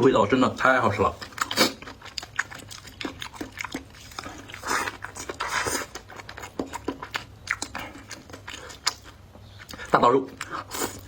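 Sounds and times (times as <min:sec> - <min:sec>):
person chewing food: 0:00.6 - 0:11.0.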